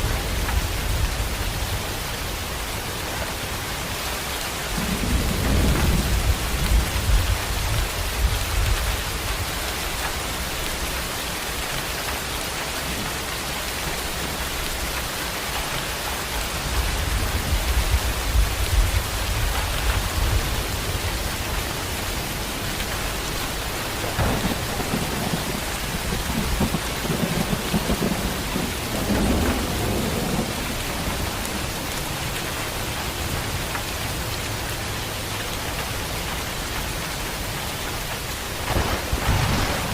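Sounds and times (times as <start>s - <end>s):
heavy rain hissing: 0.0s - 39.9s
thunder rumbling low: 4.8s - 9.6s, 16.6s - 32.3s, 38.3s - 39.9s.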